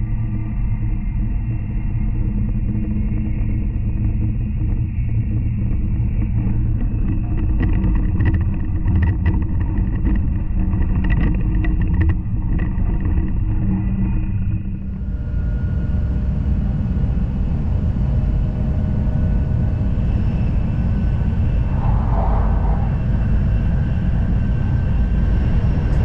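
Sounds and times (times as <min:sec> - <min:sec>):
train running low rumble: 0:17.6 - 0:26.0
faint tonal hum: 0:19.6 - 0:26.0.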